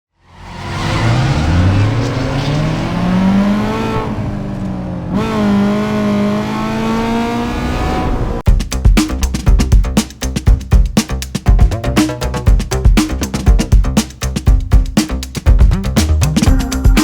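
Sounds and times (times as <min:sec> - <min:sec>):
car engine accelerating: 0:00.2 - 0:08.5
music with a beat: 0:08.5 - 0:17.0.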